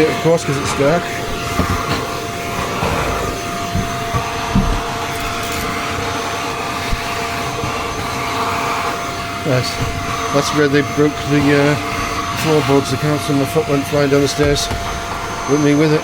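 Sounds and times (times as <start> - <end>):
stick vacuum cleaner whine: 0.0 - 16.0
low knocks: 2.6 - 5.1.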